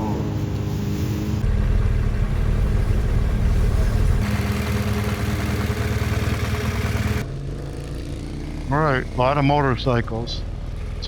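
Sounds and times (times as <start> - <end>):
motorcycle engine running: 1.4 - 9.4, 10.3 - 11.0.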